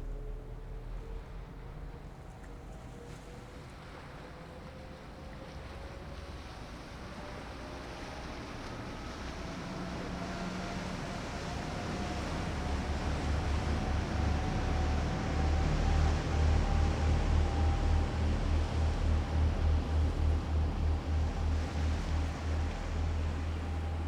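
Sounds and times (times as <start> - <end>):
water: 0.0 - 24.0
wind: 0.0 - 24.0
ship engines rumbling: 8.3 - 24.0
faint rising whine: 11.5 - 24.0.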